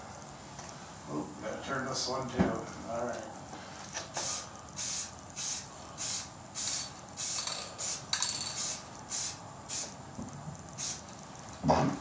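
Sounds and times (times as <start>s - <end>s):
spray can hissing: 4.0s - 10.0s, 10.7s - 11.4s.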